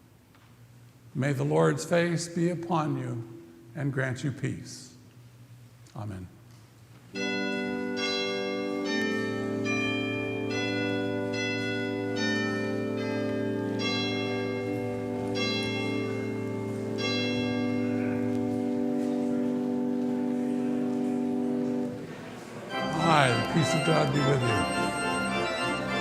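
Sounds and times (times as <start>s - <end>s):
church organ playing chords: 7.1s - 26.0s.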